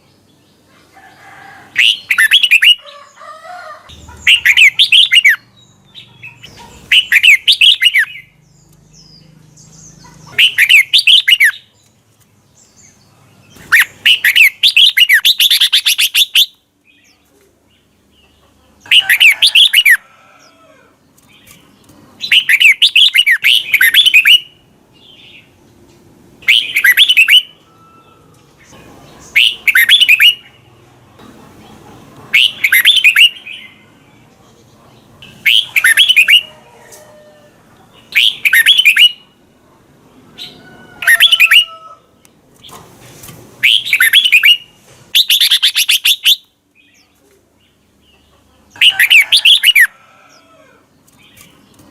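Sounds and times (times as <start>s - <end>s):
bulbul singing: 1.7s - 3.2s, 3.9s - 11.9s, 12.5s - 20.5s, 22.2s - 25.6s, 26.4s - 31.3s, 32.3s - 34.3s, 35.2s - 37.0s, 37.9s - 39.4s, 43.6s - 49.9s.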